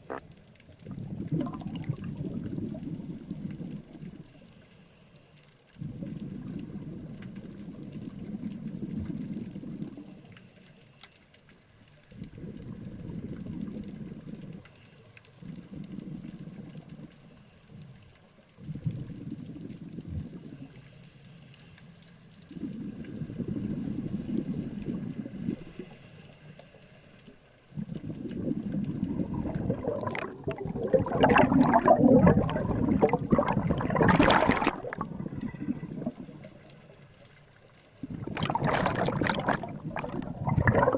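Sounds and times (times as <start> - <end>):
underwater regulator bubbling: 0.0 - 4.2, 5.8 - 10.2, 27.7 - 37.0, 38.0 - 40.9.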